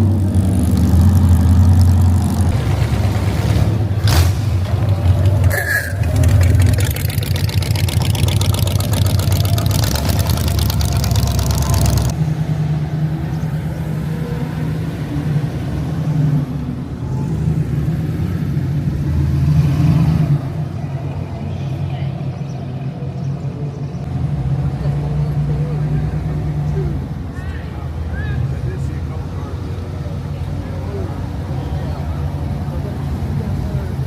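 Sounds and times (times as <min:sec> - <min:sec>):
car engine running: 0:04.7 - 0:12.2.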